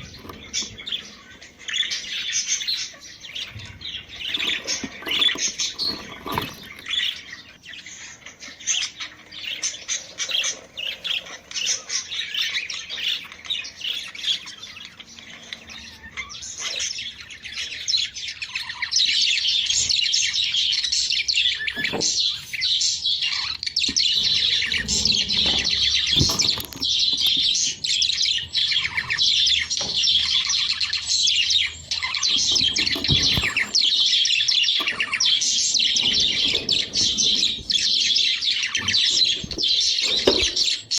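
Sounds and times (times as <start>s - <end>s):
budgerigars chattering: 0.0s - 40.9s.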